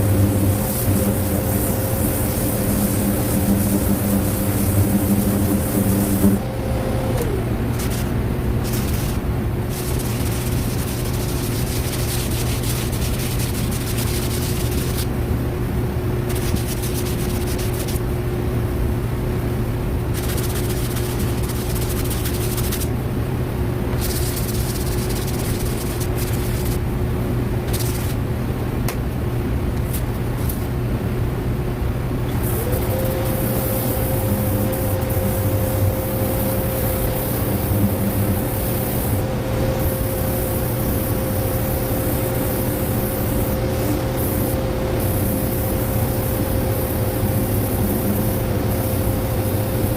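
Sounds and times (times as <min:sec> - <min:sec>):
scraping hiss: 0:00.0 - 0:06.5, 0:07.2 - 0:15.1, 0:24.0 - 0:26.8
motor humming: 0:00.0 - 0:15.0, 0:32.4 - 0:49.9.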